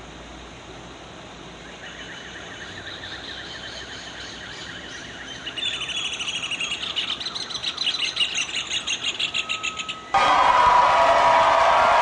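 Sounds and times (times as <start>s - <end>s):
small birds chirping: 1.6s - 10.1s.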